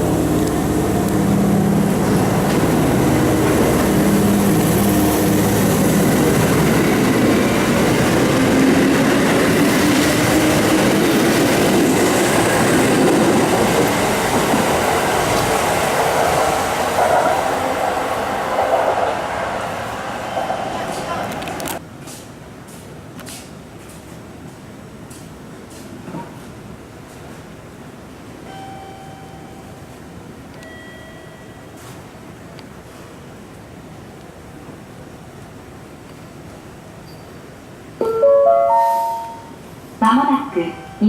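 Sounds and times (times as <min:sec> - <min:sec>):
train wheels rumbling: 0:00.0 - 0:21.8.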